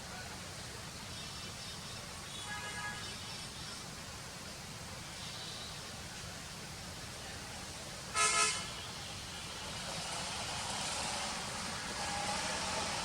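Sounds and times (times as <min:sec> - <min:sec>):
steady background hiss: 0:00.0 - 0:13.0
short horn toot: 0:08.2 - 0:08.8.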